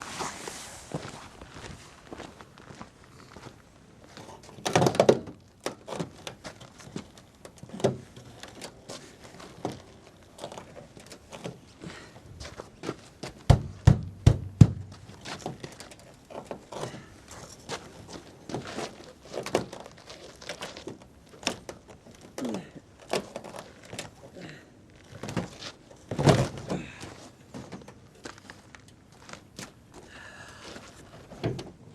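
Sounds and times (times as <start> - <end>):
knocking on a truck door: 13.5 - 15.0.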